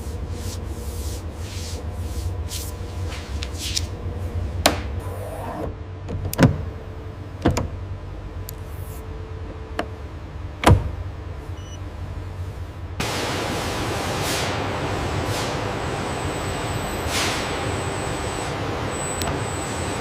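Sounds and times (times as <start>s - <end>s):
low machine hum: 0.0s - 20.0s
hissing air or spray: 17.0s - 17.6s.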